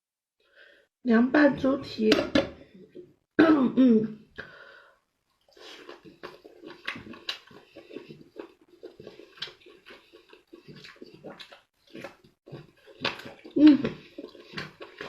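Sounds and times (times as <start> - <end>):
person chewing food: 5.3 - 15.0.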